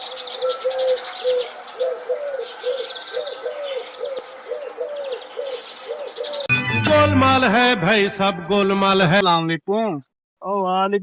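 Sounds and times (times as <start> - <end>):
high bird chirps and trills: 0.0 - 6.5.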